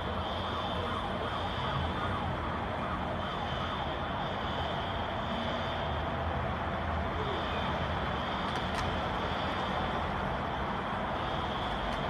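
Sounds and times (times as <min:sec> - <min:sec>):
high-pitched siren: 0:00.0 - 0:06.0
steady background noise: 0:00.0 - 0:12.0.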